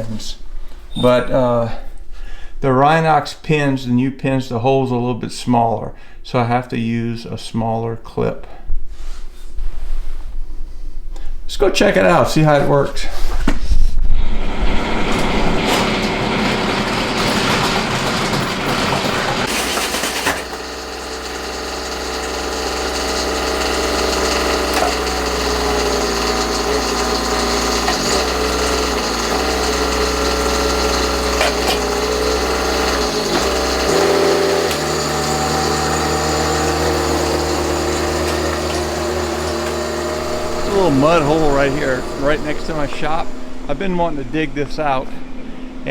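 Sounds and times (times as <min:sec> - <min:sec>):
mini excavator diesel engine running: 0:14.4 - 0:45.9.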